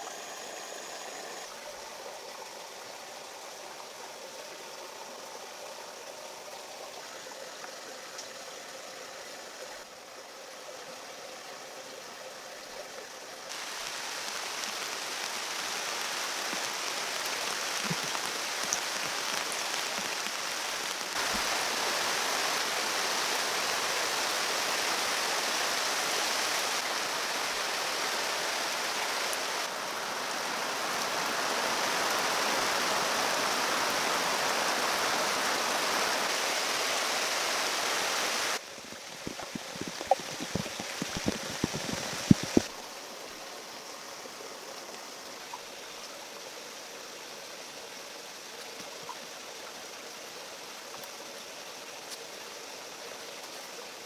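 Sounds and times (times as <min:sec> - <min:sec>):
rushing water: 0:13.4 - 0:54.0.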